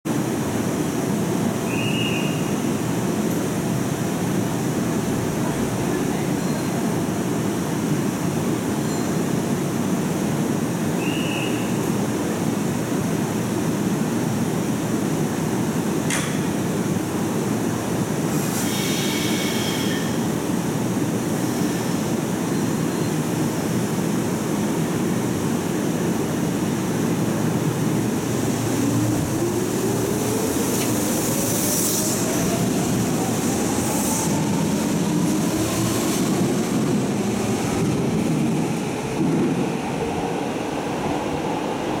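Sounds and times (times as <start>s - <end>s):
train low rumble and hum: 0.1s - 42.0s
wheel and rail noise: 27.4s - 42.0s.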